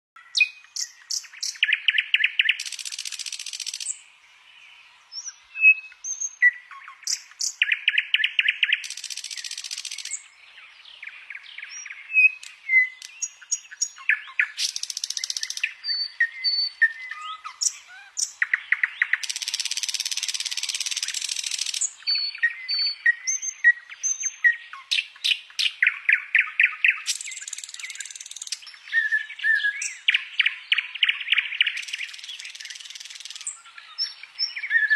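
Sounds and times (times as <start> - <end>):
bird chirps and whistles: 0.2 - 4.0, 11.6 - 34.9
songbird singing: 0.2 - 34.9.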